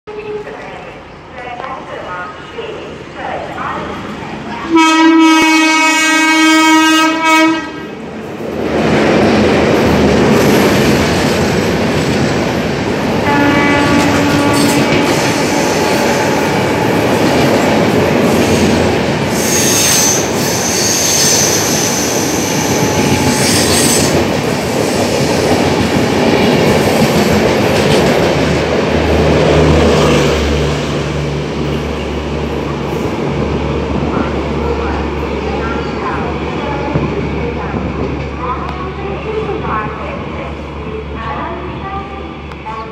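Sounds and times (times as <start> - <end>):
train horn blast: 4.7 - 7.9, 13.2 - 17.0
train wheels rumbling and clattering: 7.8 - 42.9
high wheel squeal: 19.3 - 24.1.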